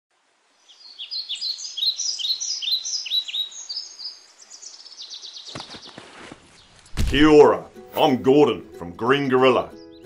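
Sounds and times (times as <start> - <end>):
birds chirping and whistling: 0.8 - 7.4, 9.7 - 10.0.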